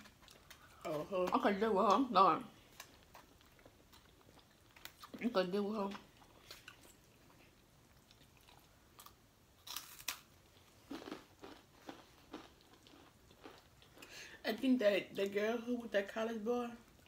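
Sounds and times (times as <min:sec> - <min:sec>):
close-up chewing with crunches: 0:05.9 - 0:14.1.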